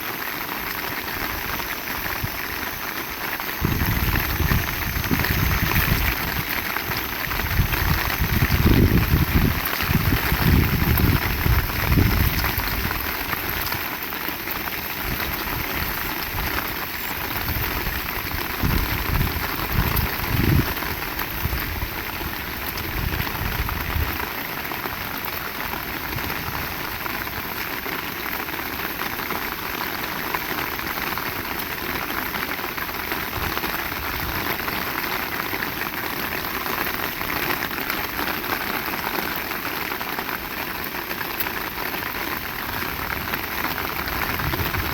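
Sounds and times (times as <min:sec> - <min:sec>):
heavy rain pouring: 0:00.0 - 0:44.9
wind gusts rumbling: 0:03.6 - 0:13.8, 0:15.0 - 0:22.0, 0:44.0 - 0:44.9.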